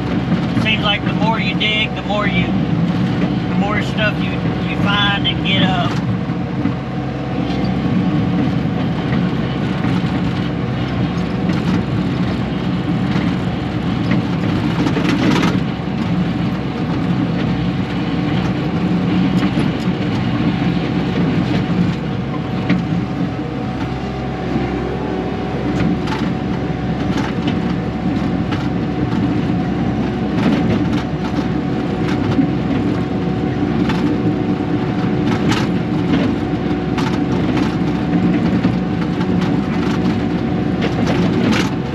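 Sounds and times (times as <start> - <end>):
track loader diesel engine: 0.0 - 41.9.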